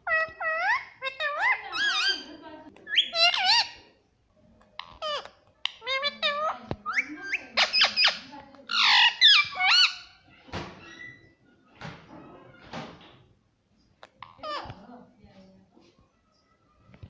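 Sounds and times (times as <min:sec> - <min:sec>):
parrot squawking and whistling: 0:05.0 - 0:10.1.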